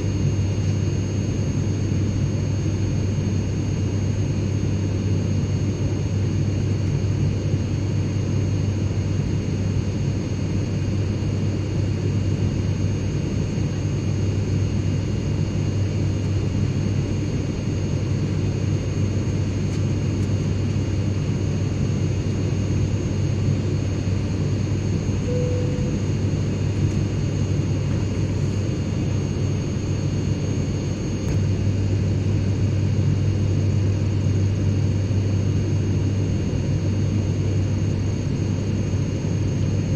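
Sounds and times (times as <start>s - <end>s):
airplane cabin rumble: 13.0s - 39.9s
faint high tones: 25.3s - 26.2s.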